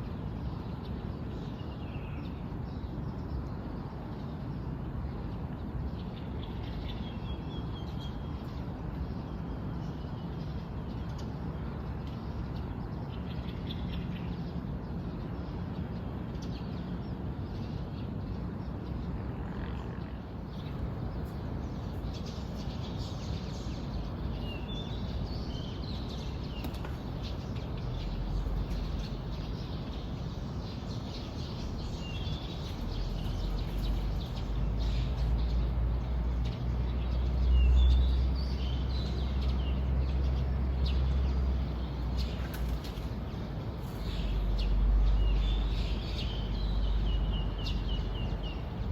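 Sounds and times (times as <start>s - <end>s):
birds chirping and calling: 20.5s - 48.9s
steady low rumble: 20.6s - 37.1s.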